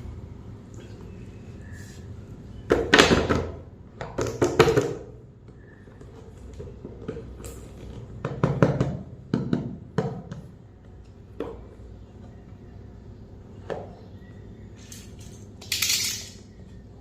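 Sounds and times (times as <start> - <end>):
hard toys clicking and clattering: 14.9 - 16.5.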